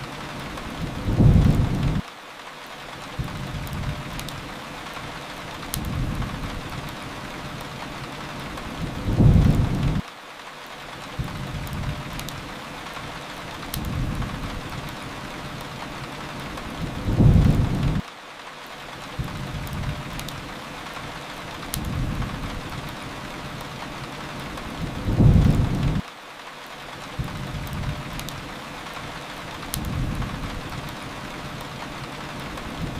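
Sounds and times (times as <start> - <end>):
steady rain: 0.0 - 32.9
wood fire crackling: 0.0 - 32.9
low thunder rumbles: 0.8 - 2.0, 8.8 - 10.0, 16.8 - 18.0, 24.7 - 26.0.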